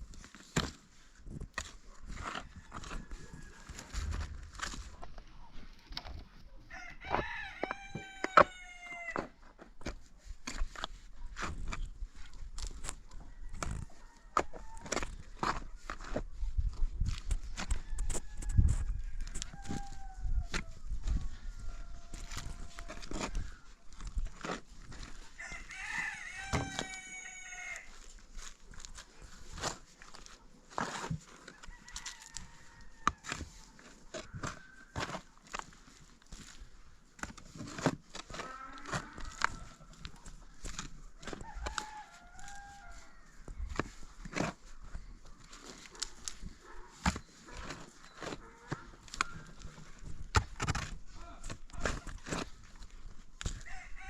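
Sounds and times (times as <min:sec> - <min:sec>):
rooster crowing: 0:06.7 - 0:09.2, 0:17.8 - 0:20.5, 0:25.4 - 0:27.9, 0:41.4 - 0:43.4, 0:53.6 - 0:54.0.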